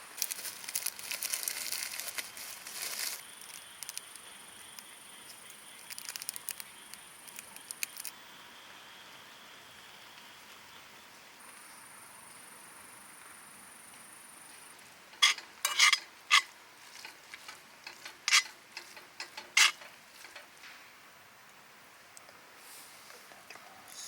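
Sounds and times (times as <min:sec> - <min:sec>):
metal utensil clinking on cookware: 0:15.2 - 0:17.2.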